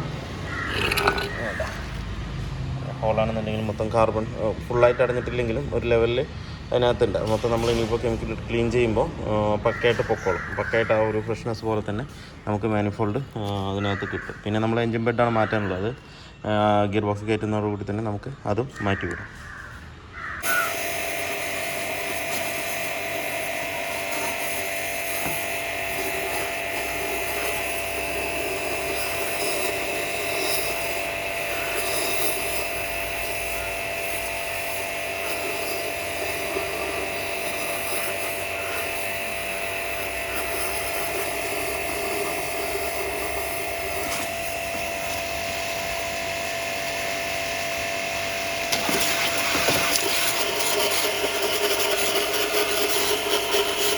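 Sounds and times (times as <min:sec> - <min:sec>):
power tool high whine: 0:00.0 - 0:02.2, 0:20.4 - 0:53.9.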